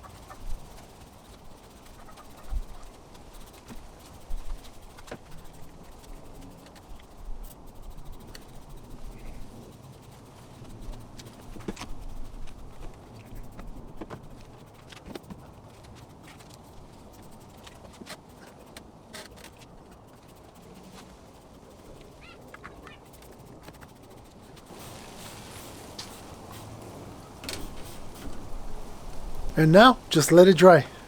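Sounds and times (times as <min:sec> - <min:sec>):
hiss: 0:23.8 - 0:30.3.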